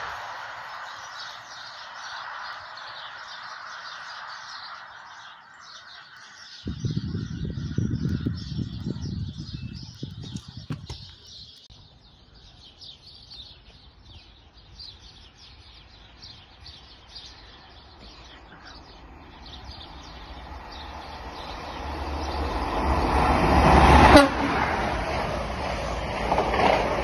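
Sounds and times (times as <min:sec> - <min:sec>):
high speed train rushing: 0:00.0 - 0:11.3, 0:19.0 - 0:27.0
birds chirping: 0:00.0 - 0:24.3.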